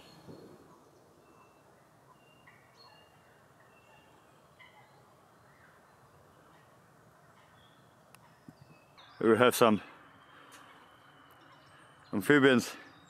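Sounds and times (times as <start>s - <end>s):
high bird chirps: 7.3s - 13.0s.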